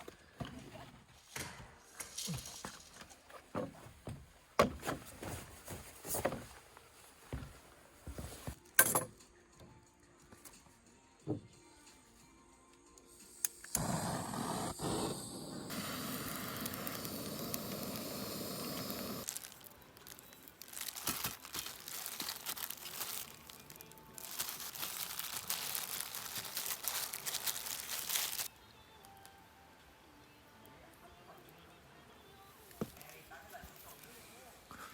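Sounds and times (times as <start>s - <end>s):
rustling and crinkling handling: 4.8s - 8.6s, 19.2s - 28.5s, 32.6s - 34.7s
irregular crackles: 14.8s - 28.5s.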